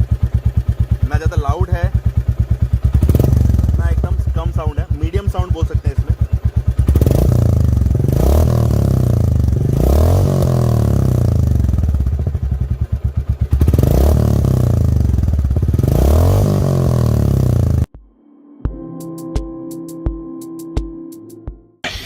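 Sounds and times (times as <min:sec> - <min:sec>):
motorcycle engine revving from idle: 0:00.0 - 0:17.9.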